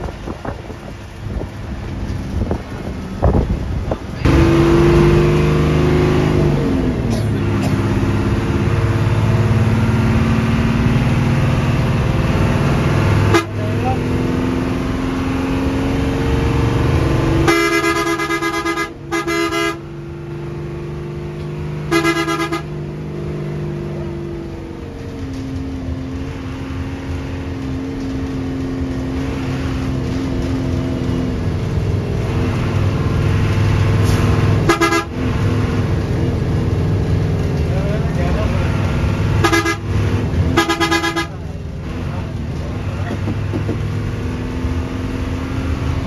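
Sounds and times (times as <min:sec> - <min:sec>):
bus engine drone: 0:00.0 - 0:46.0
bus horn blasts: 0:13.2 - 0:13.9, 0:17.4 - 0:20.0, 0:21.9 - 0:22.9, 0:34.0 - 0:35.4, 0:39.4 - 0:41.5.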